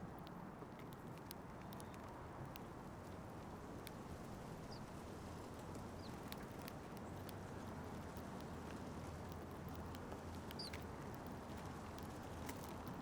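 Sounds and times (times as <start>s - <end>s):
beaks pecking seed: 0.2s - 2.8s, 6.0s - 13.0s.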